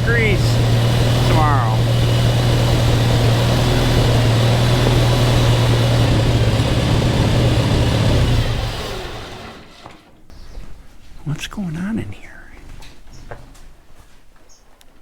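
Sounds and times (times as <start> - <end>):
vehicle engine running: 0.0 - 10.1.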